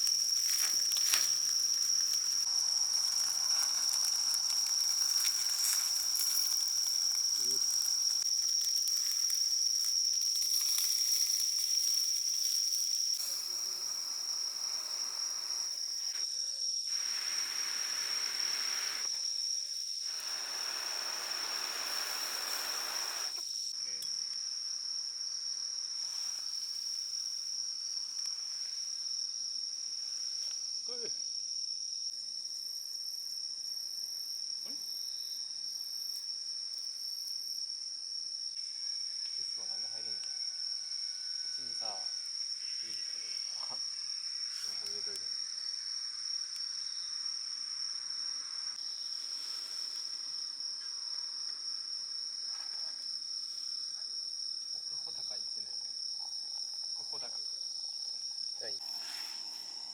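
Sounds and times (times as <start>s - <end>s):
soft hiss: 0.0s - 24.1s
night insects trilling: 0.0s - 59.9s.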